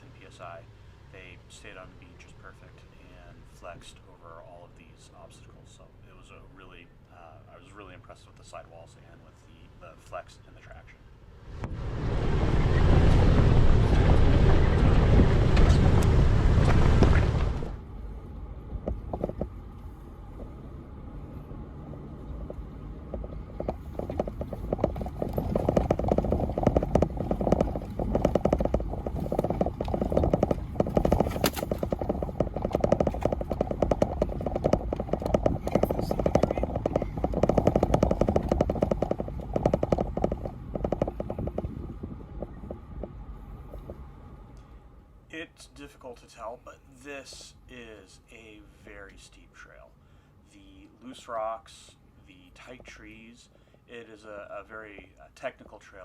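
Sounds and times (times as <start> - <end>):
low engine rumble: 0.0 - 56.0
tyres crunching over loose rock: 18.8 - 19.7, 22.0 - 44.0.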